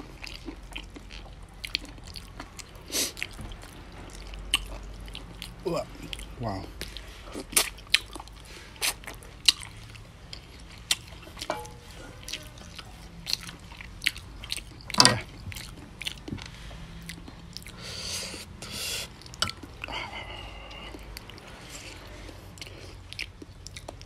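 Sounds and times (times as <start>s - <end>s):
person chewing meat: 0.0s - 24.0s.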